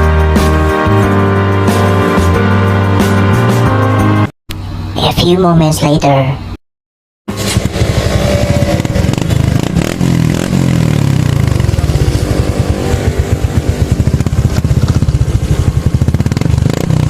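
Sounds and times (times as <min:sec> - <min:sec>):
motorcycle engine revving: 0:07.3 - 0:17.0.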